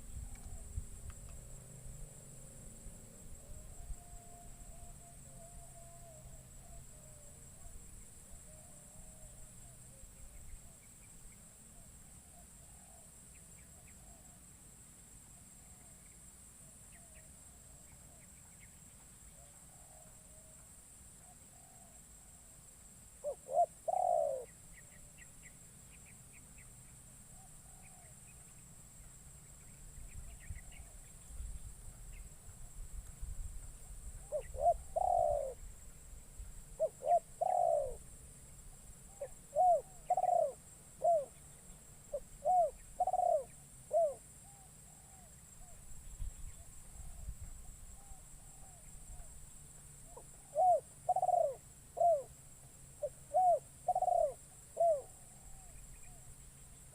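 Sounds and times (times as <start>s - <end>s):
dove cooing: 23.2s - 24.5s, 34.2s - 35.6s, 36.8s - 38.0s, 39.1s - 41.4s, 42.1s - 45.8s, 50.1s - 52.3s, 53.0s - 56.2s
faint small bird chirps: 23.2s - 33.0s, 33.8s - 38.1s, 39.1s - 52.3s, 53.0s - 56.9s.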